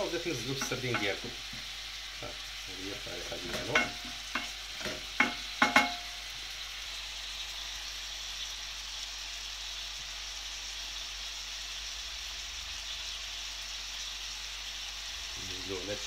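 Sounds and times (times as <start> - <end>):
onion sizzling in oil: 0.0 - 16.0
knocks against a pot: 3.5 - 6.1.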